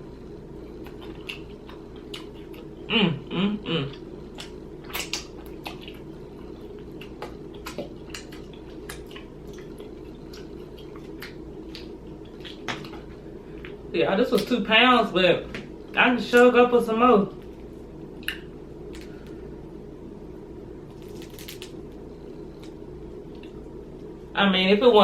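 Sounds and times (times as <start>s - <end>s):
low background hum: 0.0s - 25.0s
person humming: 2.8s - 4.0s
wet squishing and slurping: 4.2s - 13.8s.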